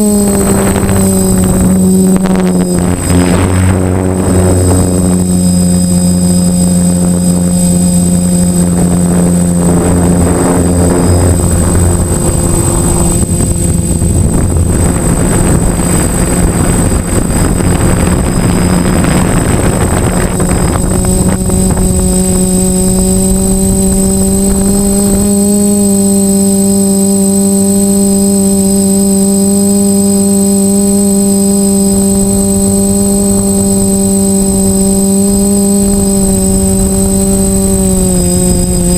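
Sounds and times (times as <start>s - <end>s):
rushing air: 0.0s - 25.4s
drone motors humming: 0.0s - 38.9s
thin high whine: 0.0s - 38.9s.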